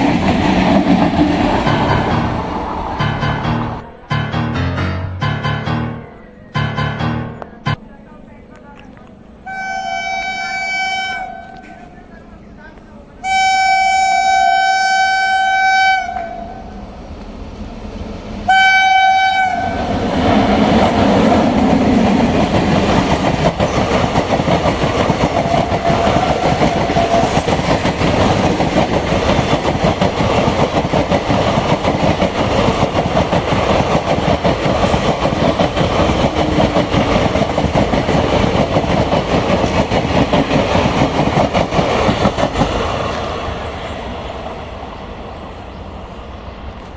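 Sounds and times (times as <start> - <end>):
wheels clacking over rail joints: 0.0 - 6.0, 20.0 - 43.3
train passing rumble: 0.0 - 46.9
train horn blowing: 9.4 - 12.0, 13.2 - 16.8, 18.5 - 19.9.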